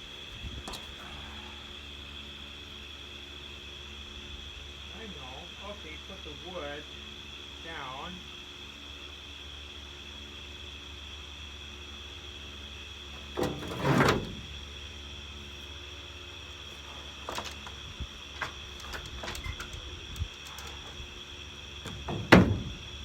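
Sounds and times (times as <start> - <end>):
wooden boards scraping clatter: 13.2 - 14.7.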